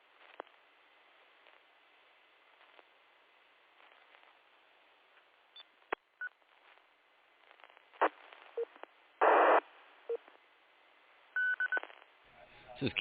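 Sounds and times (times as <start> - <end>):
burst of static: 5.8 - 10.4.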